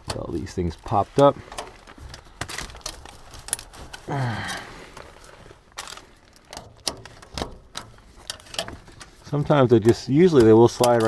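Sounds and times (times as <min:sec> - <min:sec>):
vent pipe knocks and clicks: 0:00.0 - 0:04.0, 0:06.5 - 0:11.0
person grunting: 0:04.1 - 0:04.8.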